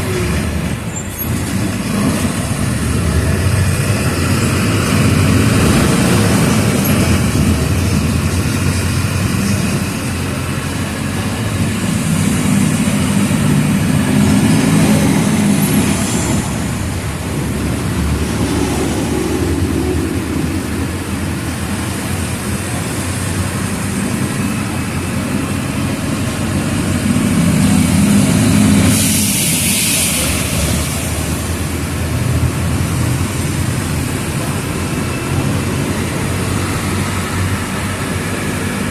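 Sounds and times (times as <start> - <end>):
bus engine running: 0.0 - 38.9
compressed air hiss: 28.9 - 31.3.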